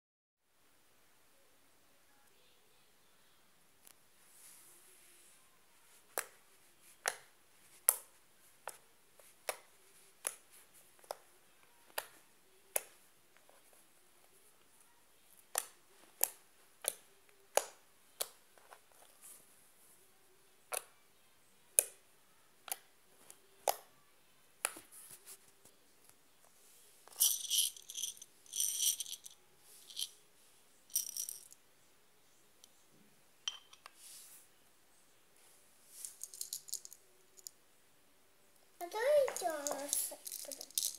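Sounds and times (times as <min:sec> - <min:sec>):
beads clicking: 0:27.1 - 0:30.1, 0:30.9 - 0:31.6, 0:36.0 - 0:37.5, 0:39.3 - 0:40.9
beads rattling: 0:27.1 - 0:30.1, 0:30.9 - 0:31.6, 0:36.0 - 0:37.5, 0:39.3 - 0:40.9.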